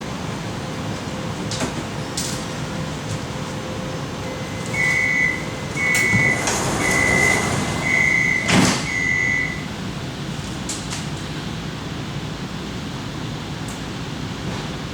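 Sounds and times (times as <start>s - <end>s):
sliding doors closing: 0.0s - 11.9s, 13.3s - 14.9s
train car hum: 0.0s - 14.9s
short high warning beeps: 3.7s - 9.7s.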